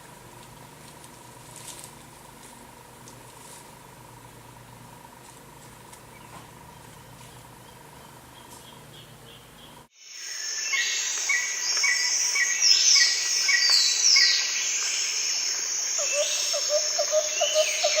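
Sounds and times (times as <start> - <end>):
lower repeated bird notes: 6.2 - 18.0
high insect trill: 10.0 - 18.0
birds chirping and whistling: 10.6 - 15.2, 16.0 - 18.0.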